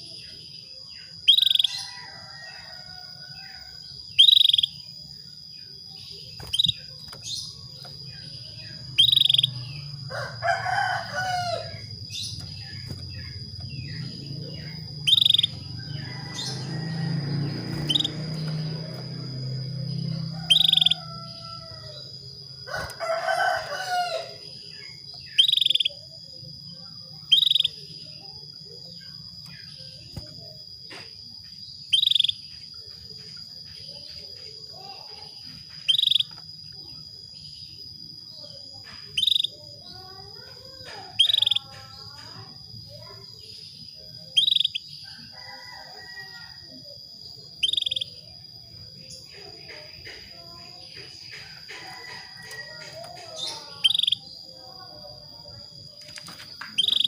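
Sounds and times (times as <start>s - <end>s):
canary chirping trills: 0.0s - 57.0s
rooster crowing: 1.6s - 3.9s, 9.8s - 12.0s, 13.7s - 24.6s, 45.0s - 46.9s, 51.5s - 54.4s
canary call notes: 4.1s - 4.8s, 8.6s - 19.2s, 20.0s - 22.0s, 25.2s - 26.0s, 39.0s - 39.6s, 40.9s - 41.7s, 44.3s - 44.9s, 47.6s - 48.2s, 51.2s - 54.4s, 56.7s - 57.0s.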